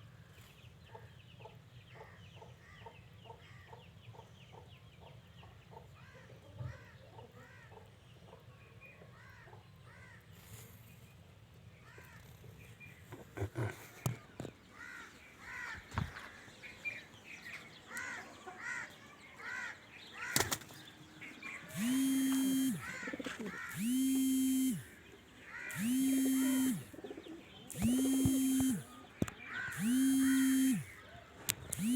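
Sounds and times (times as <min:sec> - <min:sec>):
loud flat buzzing tone: 0:21.7 - 0:25.0, 0:25.7 - 0:27.0, 0:27.7 - 0:29.0, 0:29.6 - 0:31.0
squeaky chirps: 0:29.7 - 0:31.0.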